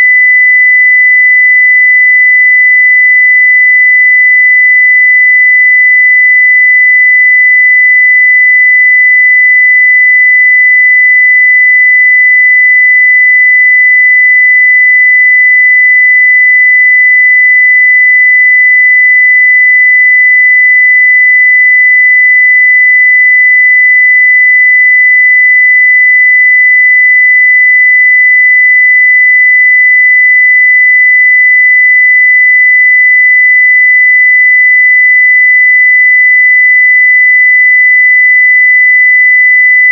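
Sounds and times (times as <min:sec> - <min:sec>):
steady sine wave test tone: 0:00.0 - 0:39.9.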